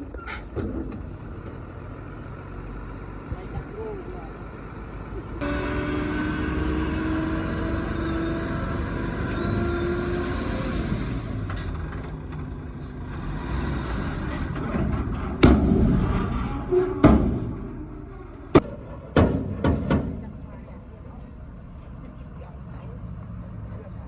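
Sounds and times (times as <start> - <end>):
truck engine running: 0.0 - 24.0
loud knocks: 14.6 - 16.3, 17.0 - 17.7.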